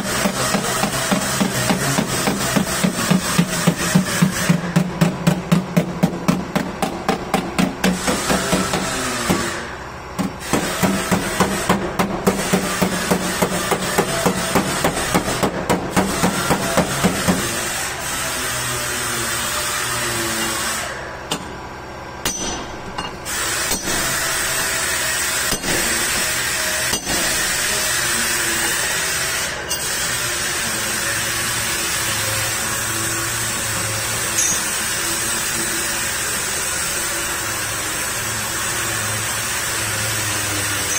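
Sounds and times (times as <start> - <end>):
steady mechanical noise: 0.0 - 40.9
hand hammer striking: 4.7 - 9.5, 22.2 - 24.3, 25.5 - 27.4.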